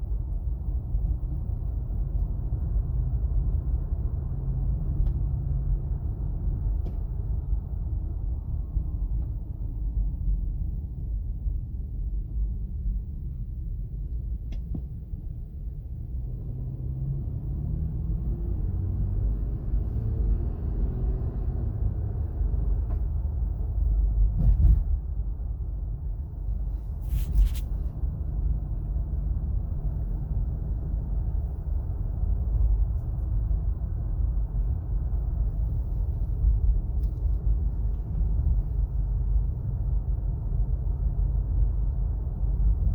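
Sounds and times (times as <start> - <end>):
road and tyre rumble: 0.0 - 42.9
thump: 24.3 - 25.0.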